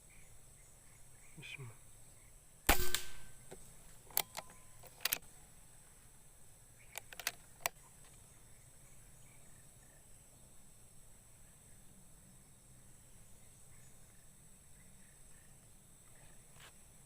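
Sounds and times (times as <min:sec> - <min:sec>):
air rifle shot: 0:02.7 - 0:03.5
sharp metallic clicks: 0:02.7 - 0:05.2, 0:06.9 - 0:07.8.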